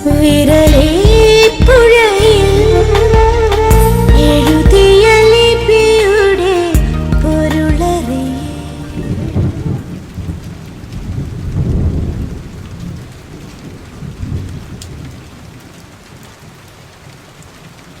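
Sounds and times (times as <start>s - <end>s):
rain falling: 0.0s - 18.0s
rolling thunder: 8.8s - 15.7s.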